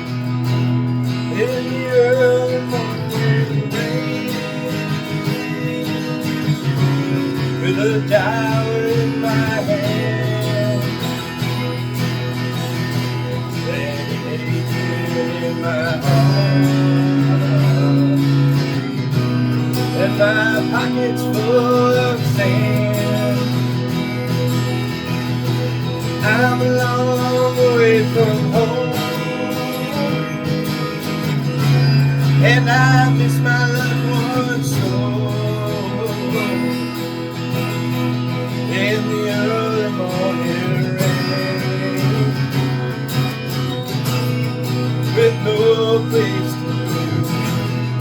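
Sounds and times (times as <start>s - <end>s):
instrumental guitar music: 0.0s - 48.0s.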